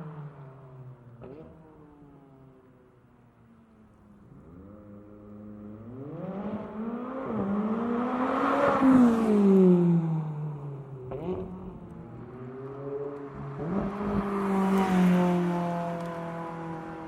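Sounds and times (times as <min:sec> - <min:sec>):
sports car engine accelerating: 0:04.2 - 0:17.0.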